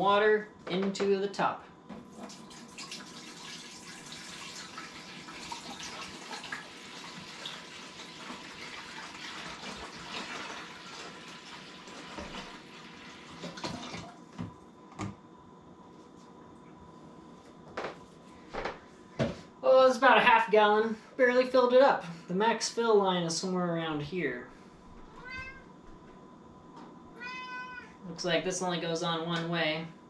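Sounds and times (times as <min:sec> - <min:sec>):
water pouring into tank: 0:02.1 - 0:14.1.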